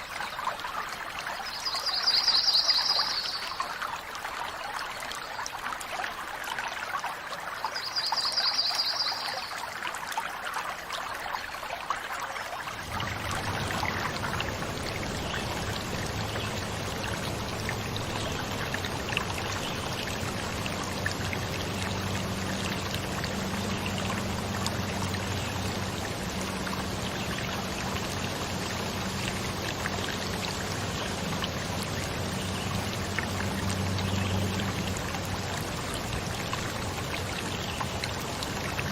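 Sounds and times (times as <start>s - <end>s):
stream water running: 0.0s - 38.9s.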